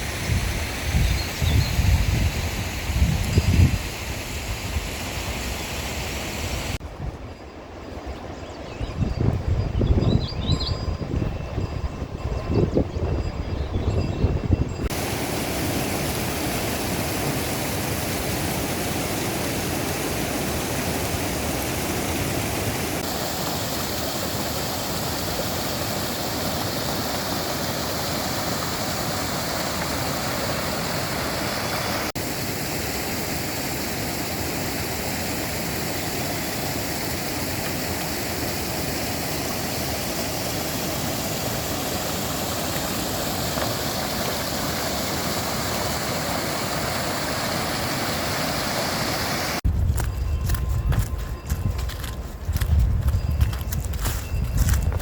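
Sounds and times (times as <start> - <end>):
stream water rushing: 0.0 - 6.8, 14.9 - 49.6.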